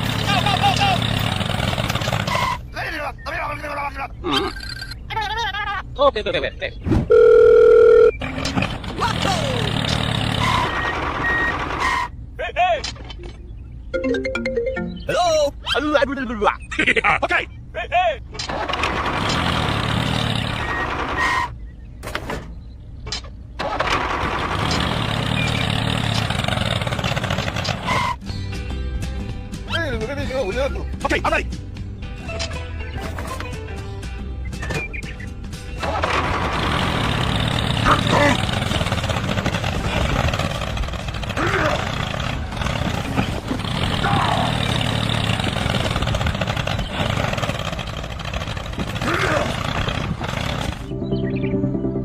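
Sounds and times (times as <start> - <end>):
tractor engine running: 0.0 - 2.7, 7.1 - 12.4, 18.4 - 21.8, 22.6 - 28.2, 33.7 - 52.0.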